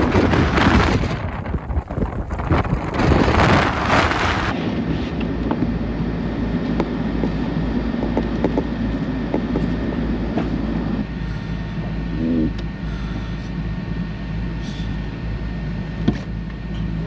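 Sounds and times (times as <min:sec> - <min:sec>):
wind blasting microphone: 0:00.0 - 0:05.2
vehicle engine hum: 0:00.0 - 0:17.0.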